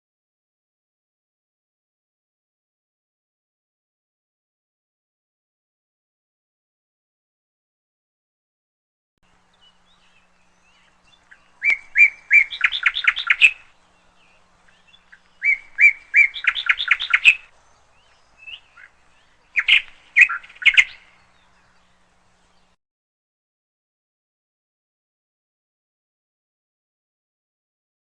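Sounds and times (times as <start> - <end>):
canary chirping: 9.7 - 13.7, 14.3 - 17.5, 18.1 - 21.2.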